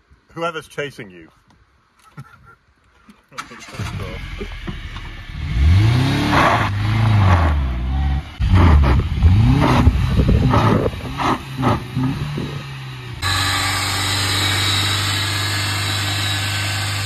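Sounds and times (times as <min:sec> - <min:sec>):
car engine starting: 0:03.4 - 0:17.0
car engine revving: 0:03.7 - 0:17.0.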